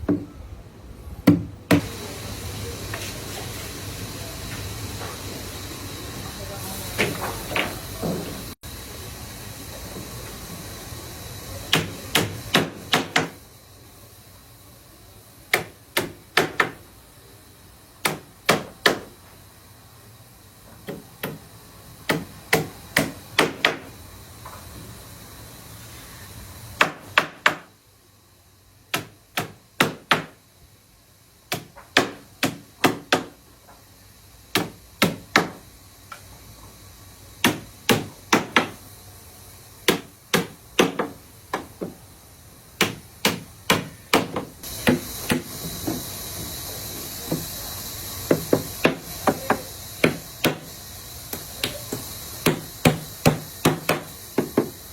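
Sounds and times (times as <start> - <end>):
steady hiss: 0.0 - 54.9
hammer blows on wood: 48.3 - 50.7, 51.3 - 54.7.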